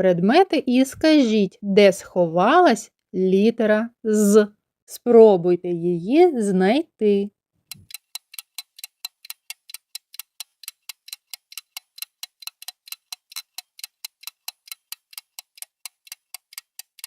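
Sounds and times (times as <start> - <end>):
clock ticking: 7.7 - 17.0.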